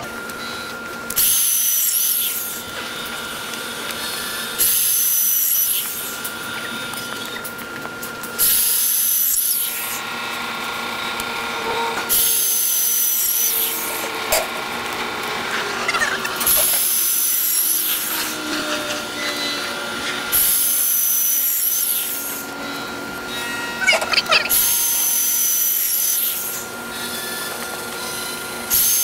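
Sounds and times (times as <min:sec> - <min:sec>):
power drill grinding into tile: 0:15.6 - 0:22.3.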